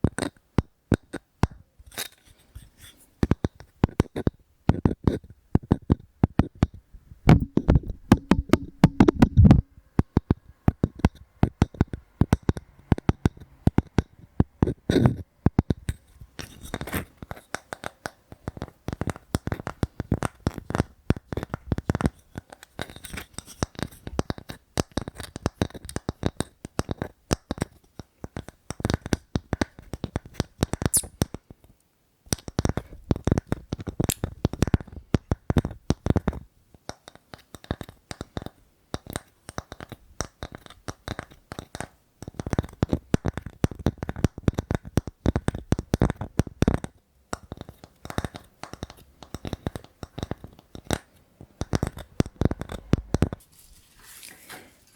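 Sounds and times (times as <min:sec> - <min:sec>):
fingers tapping on wood: 0:07.3 - 0:09.6.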